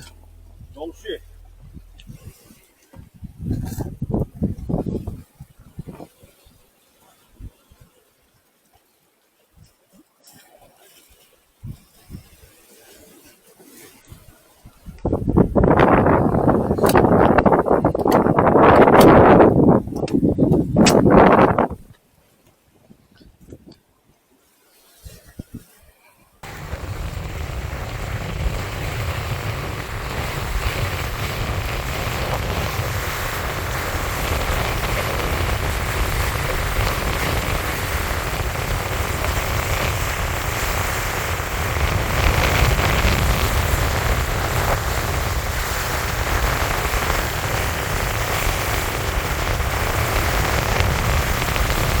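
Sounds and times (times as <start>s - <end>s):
wind buffeting the microphone: 0.0s - 6.6s, 11.6s - 12.6s, 14.0s - 22.0s, 26.4s - 52.0s.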